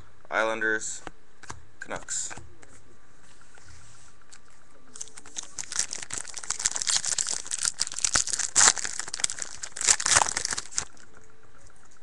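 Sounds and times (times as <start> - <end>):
wrapper crinkling: 4.9 - 11.0
wrapper ripping: 5.0 - 11.0.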